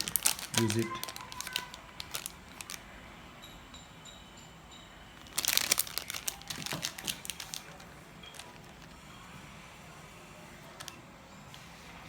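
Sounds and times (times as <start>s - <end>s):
packaging crinkling: 0.0s - 2.8s, 5.2s - 9.0s, 10.7s - 11.0s.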